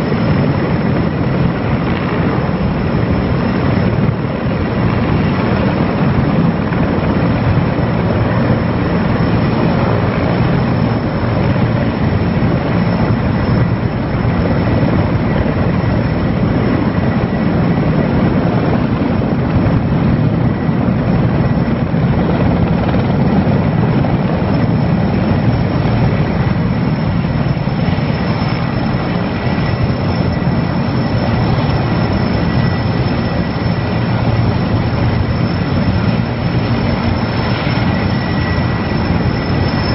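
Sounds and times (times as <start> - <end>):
helicopter high whine: 0.0 - 39.9
helicopter rotor beat: 0.0 - 39.9.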